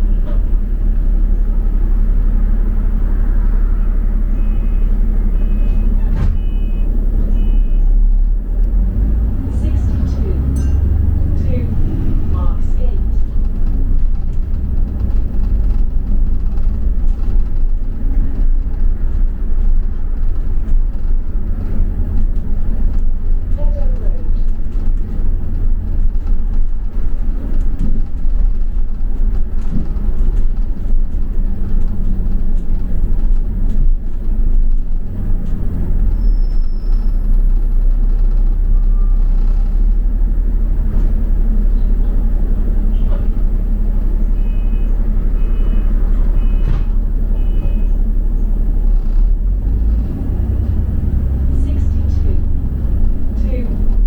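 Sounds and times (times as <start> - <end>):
bus engine and road rumble: 0.0 - 54.0
short two-tone beeps: 4.4 - 7.8.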